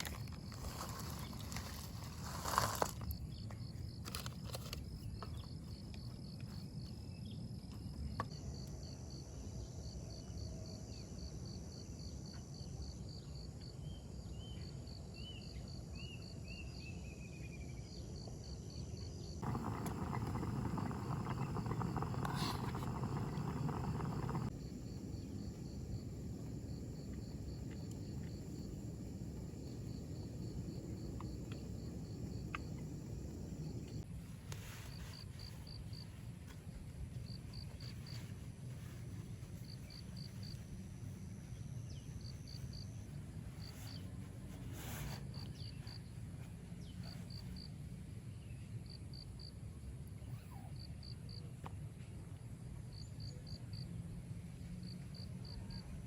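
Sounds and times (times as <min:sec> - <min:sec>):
insect chirping high and fast: 0:19.4 - 0:34.0
low outdoor rumble: 0:19.4 - 0:34.4.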